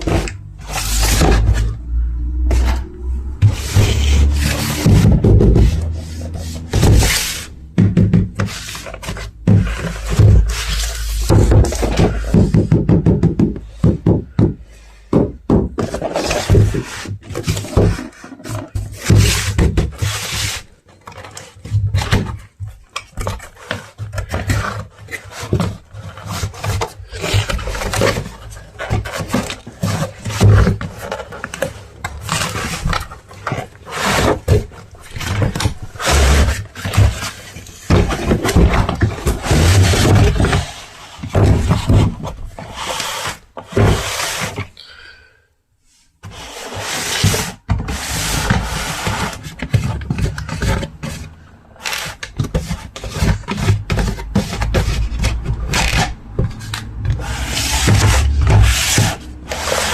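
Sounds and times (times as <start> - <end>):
rubbing and scraping: 0.0 - 44.8, 45.9 - 59.9.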